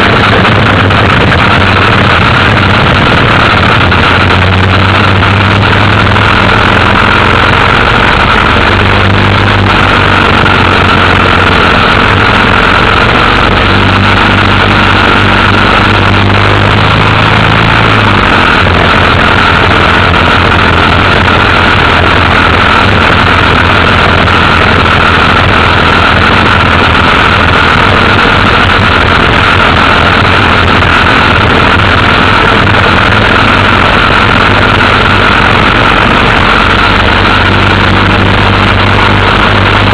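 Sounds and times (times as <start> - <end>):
dense rushing noise: 0.0 - 39.9
motorcycle engine running: 0.0 - 39.9.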